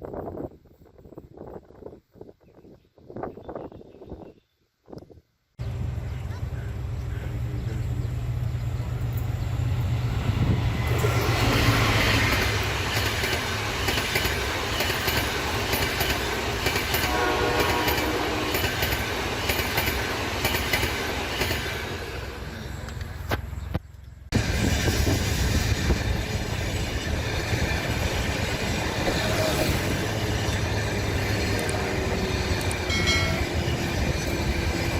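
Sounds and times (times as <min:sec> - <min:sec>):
diesel train passing: 0:05.6 - 0:34.9
train horn: 0:17.0 - 0:19.0, 0:31.4 - 0:33.8.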